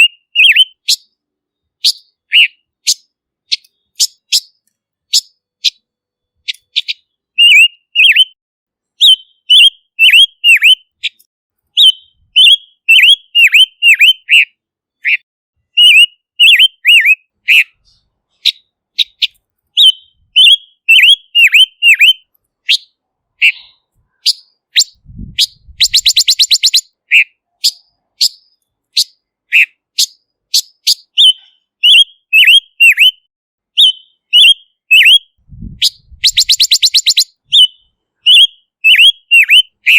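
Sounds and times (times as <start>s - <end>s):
bird whistled notes: 0.0s - 1.1s, 1.8s - 5.8s, 6.4s - 8.4s, 9.0s - 11.2s, 11.8s - 15.2s, 15.8s - 39.9s
bird rattling trill: 24.9s - 26.9s, 35.9s - 37.3s.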